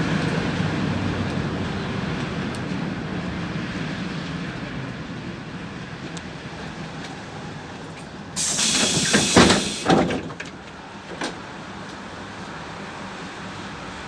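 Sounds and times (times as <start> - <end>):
bus engine humming: 0.0 - 14.0
pneumatic door hiss: 8.4 - 10.3
bus door clunks: 8.4 - 11.4.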